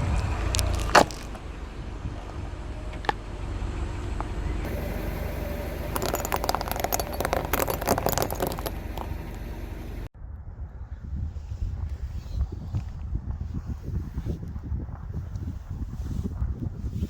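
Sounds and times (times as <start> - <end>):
car rumble: 0.0 - 10.1
tyre crushing crunchy objects: 0.5 - 1.4.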